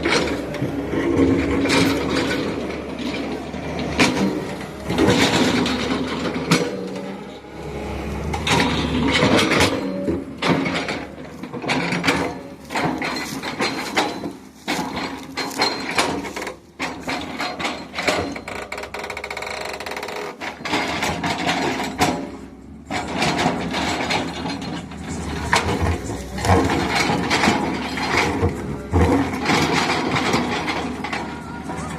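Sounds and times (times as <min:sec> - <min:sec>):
hydraulic breaker hammering concrete: 0:20.4 - 0:31.9.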